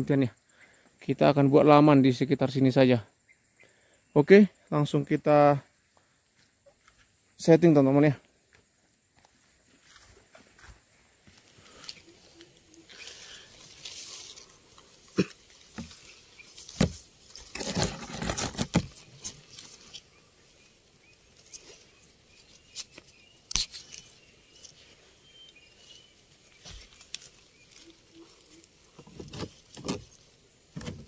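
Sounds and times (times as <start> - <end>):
gear rustling and scraping: 15.6 - 20.2.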